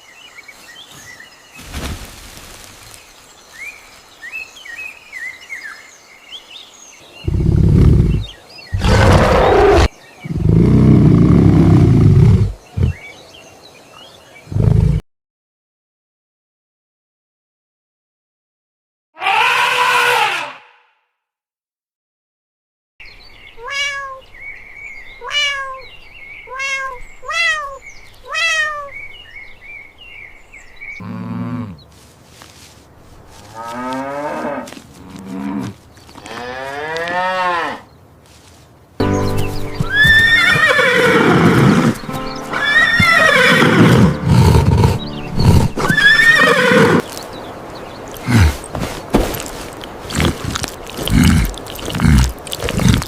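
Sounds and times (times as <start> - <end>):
dense loud animal calls: 7.2 - 11.1, 39.8 - 47.0
rising and falling animal calls: 7.2 - 13.1, 39.7 - 47.2.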